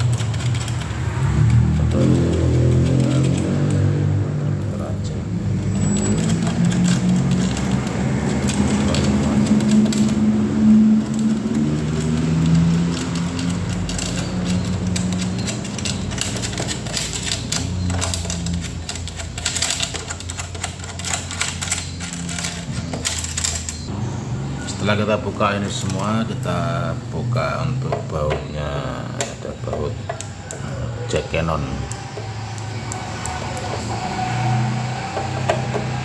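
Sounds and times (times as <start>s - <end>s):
hand tools clicking on metal screws: 0.0s - 3.9s, 5.6s - 23.9s.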